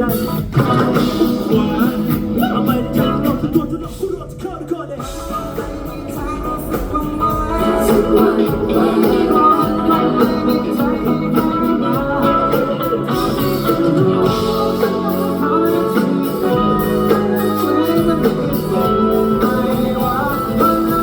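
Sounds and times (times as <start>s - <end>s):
rock band playing: 0.0s - 21.0s
steady drum beat: 0.0s - 21.0s.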